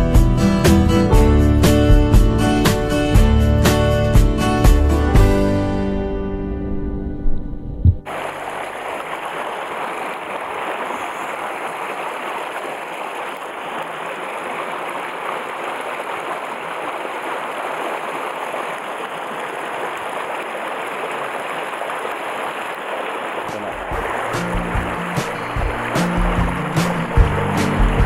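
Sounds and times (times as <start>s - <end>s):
stream running over rocks: 8.1s - 28.0s.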